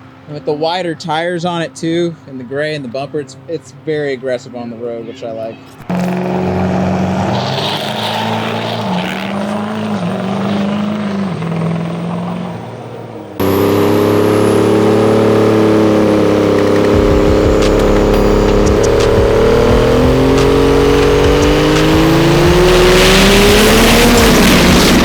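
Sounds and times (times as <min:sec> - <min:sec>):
diesel truck engine running: 0:05.8 - 0:25.0.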